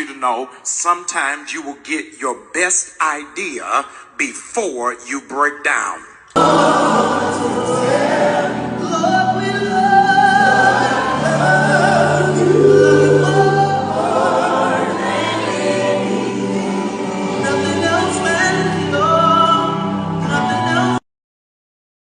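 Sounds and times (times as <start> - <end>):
sustained background music: 6.4 - 19.2
gospel choir singing: 6.4 - 21.0.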